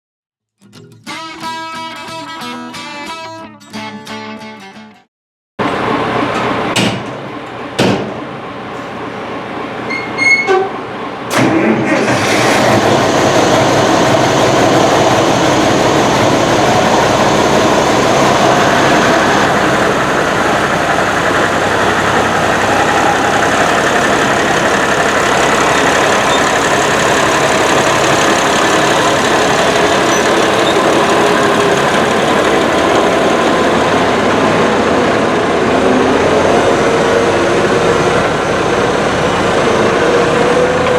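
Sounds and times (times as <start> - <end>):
sharp knocks: 6.7 - 7.2, 7.8 - 8.2
diesel tractor engine running: 10.9 - 40.9.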